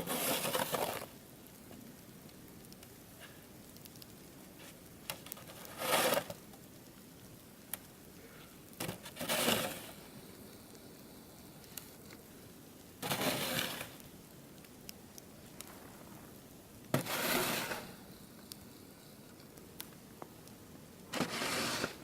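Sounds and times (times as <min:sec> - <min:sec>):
crunching scraping bursts: 0:00.0 - 0:01.1, 0:05.2 - 0:06.4, 0:08.8 - 0:10.0, 0:13.0 - 0:14.0, 0:17.0 - 0:18.0, 0:21.1 - 0:22.0.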